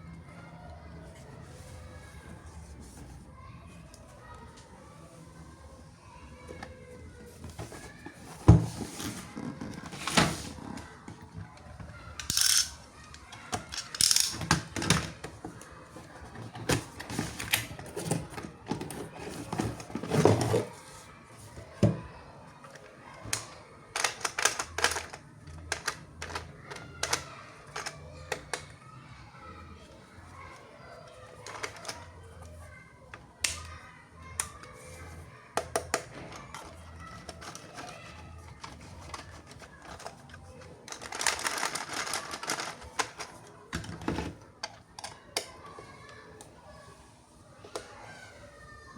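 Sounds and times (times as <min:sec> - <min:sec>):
plastic clicks and crinkling: 0:07.4 - 0:20.7, 0:22.6 - 0:28.8, 0:31.4 - 0:46.6.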